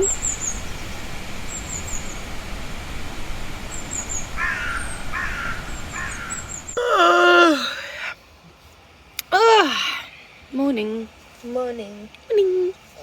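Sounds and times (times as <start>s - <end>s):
small bird chirping: 0.0s - 2.3s
river rushing: 0.0s - 6.8s
crow cawing: 4.4s - 6.6s.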